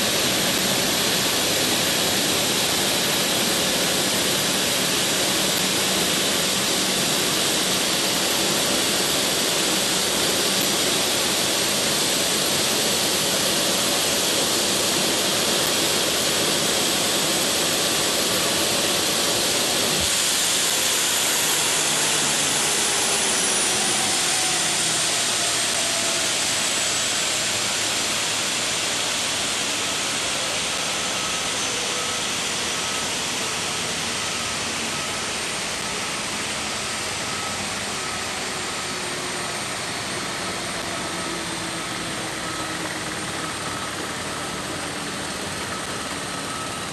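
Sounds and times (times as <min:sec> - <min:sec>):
faint falling whine: 0:00.0 - 0:46.9
jet engines rushing: 0:00.0 - 0:46.9.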